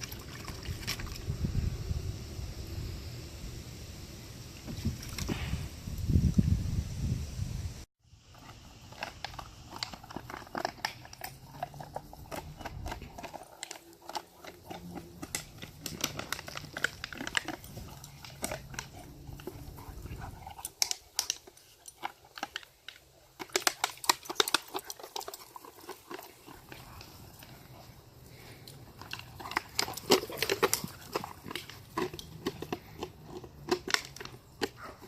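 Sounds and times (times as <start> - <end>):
puppies chewing with sharp clicks: 8.2 - 35.0.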